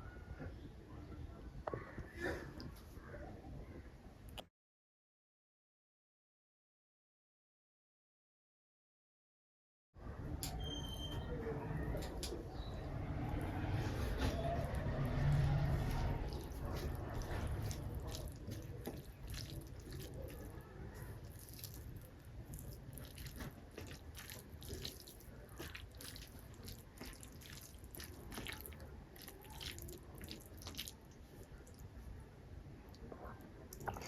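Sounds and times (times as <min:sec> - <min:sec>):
wet clicks and squelches of eating: 0:14.6 - 0:31.9, 0:33.7 - 0:34.0.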